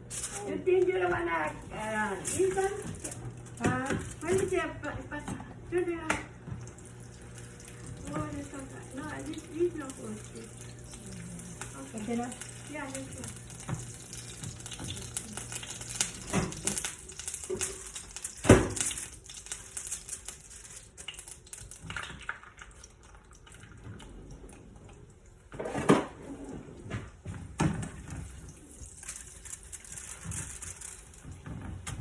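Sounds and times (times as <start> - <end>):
utensils and dishes clattering: 0.1 - 5.4, 8.0 - 21.8, 27.6 - 32.0
oil sizzling in a frying pan: 1.6 - 4.7, 6.3 - 23.0, 27.8 - 32.0.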